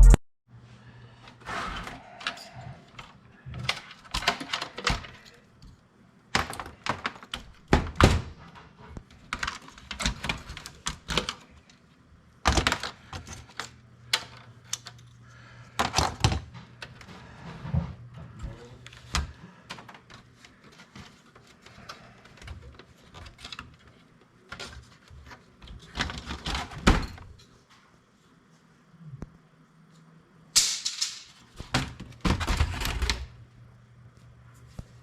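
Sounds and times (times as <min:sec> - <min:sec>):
faint low hum: 0:00.0 - 0:30.6
computer parts knocking and rattling: 0:02.2 - 0:05.4, 0:06.3 - 0:11.8, 0:12.4 - 0:15.1, 0:15.7 - 0:27.4, 0:30.6 - 0:33.4.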